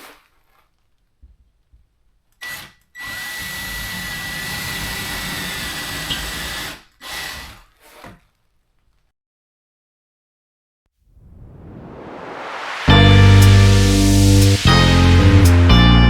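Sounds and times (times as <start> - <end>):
power drill driving a screw: 2.4 - 8.1.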